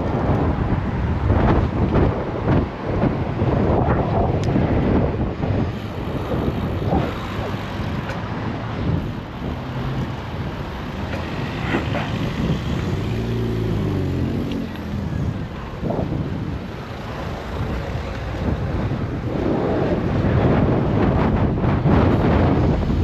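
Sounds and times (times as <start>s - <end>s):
traffic noise: 0.0s - 23.0s
wind on microphone: 0.0s - 23.0s
vehicle engine passing: 8.7s - 16.3s.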